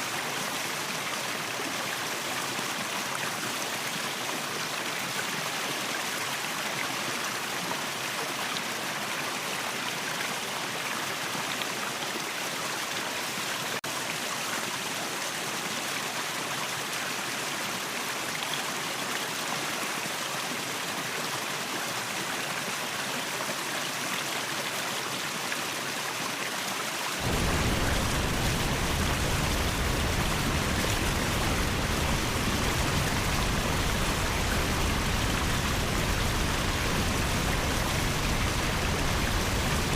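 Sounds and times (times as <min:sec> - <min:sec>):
waterfall rushing: 0:27.2 - 0:39.9.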